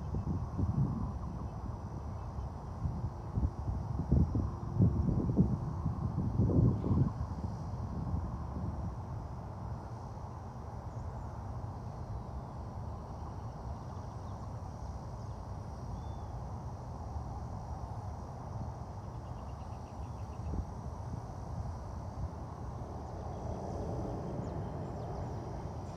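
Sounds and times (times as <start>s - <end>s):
low outdoor rumble: 22.2s - 25.9s.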